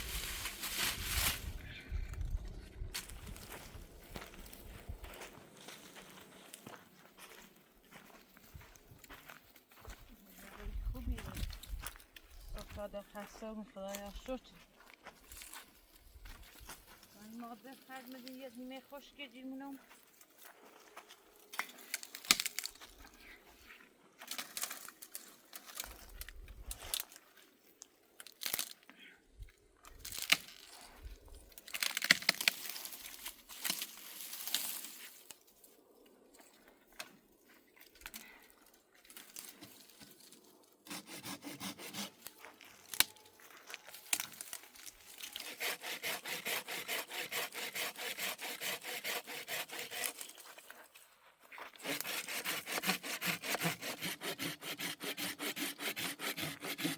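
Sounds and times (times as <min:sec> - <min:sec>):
saw cutting wood: 0:40.8 - 0:42.3, 0:45.2 - 0:50.4, 0:51.8 - 0:56.9.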